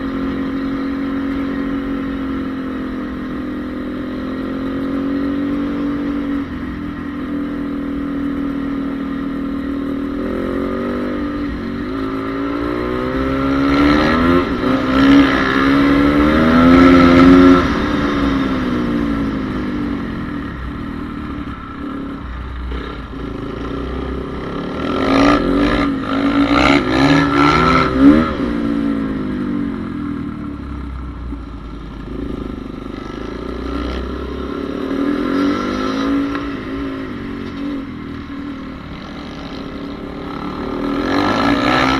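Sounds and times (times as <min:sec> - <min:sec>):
motocross bike engine revving: 0:10.1 - 0:19.4, 0:22.7 - 0:29.0, 0:38.8 - 0:41.9.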